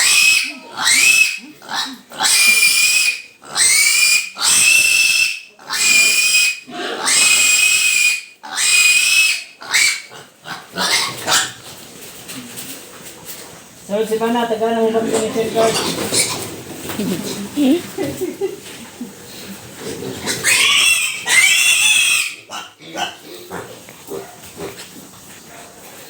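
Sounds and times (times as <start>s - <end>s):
piglet squealing: 0.0s - 10.1s, 10.8s - 11.6s, 15.6s - 16.5s, 20.2s - 23.2s.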